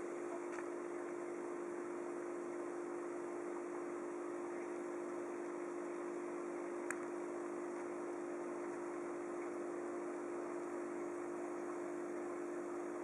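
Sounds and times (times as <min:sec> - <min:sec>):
faint click: 0:06.8 - 0:07.2.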